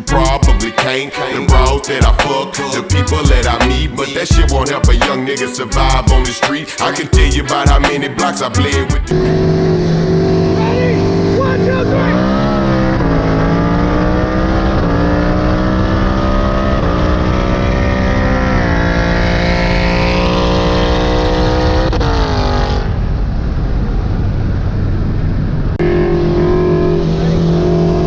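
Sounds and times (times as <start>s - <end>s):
high whine: 0.0s - 11.0s
car engine at full throttle: 9.0s - 28.0s.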